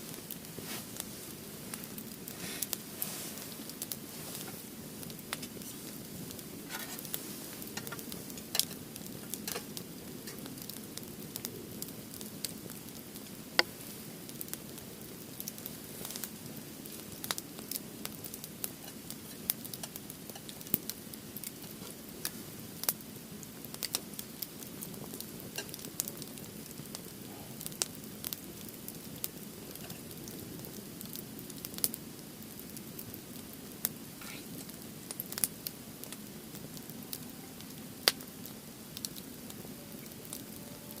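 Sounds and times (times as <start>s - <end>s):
firewood crackling and popping: 0.0s - 41.0s
low hiss of flames: 0.0s - 41.0s.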